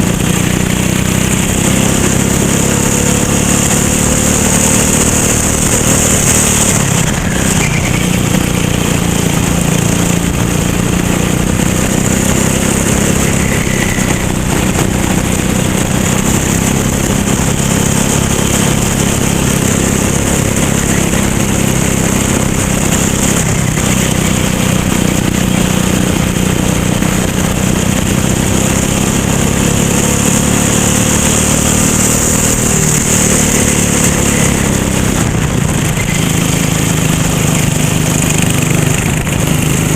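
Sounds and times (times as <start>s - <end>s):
wind noise: 0.0s - 30.4s, 31.7s - 39.9s
racing kart engine running: 0.0s - 39.9s.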